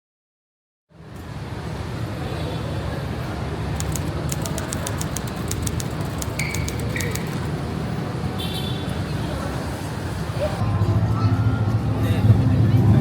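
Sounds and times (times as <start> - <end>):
low rumble of traffic: 0.9 - 13.0
rapid faint ticks: 3.8 - 7.5.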